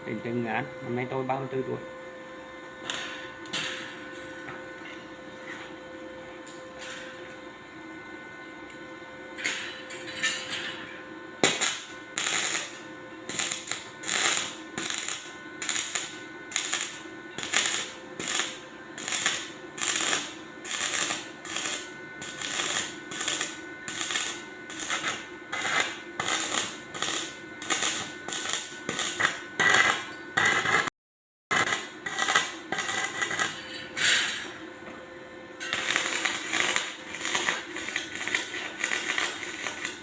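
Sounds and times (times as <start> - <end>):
faint electrical whine: 0.0 - 30.8, 31.6 - 40.0
arc welding crackle: 2.8 - 4.2, 11.4 - 30.9, 31.5 - 33.8, 35.6 - 40.0.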